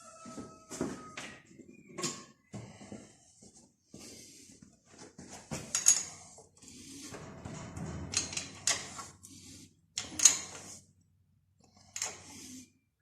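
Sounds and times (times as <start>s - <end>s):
metal tools clinking and knocking: 5.6s - 9.3s.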